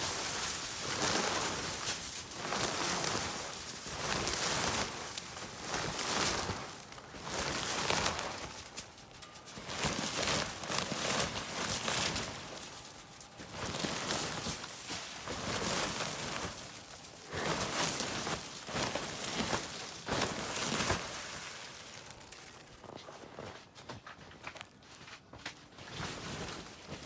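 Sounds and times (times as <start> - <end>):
shovel scraping snow: 0.0 - 8.8.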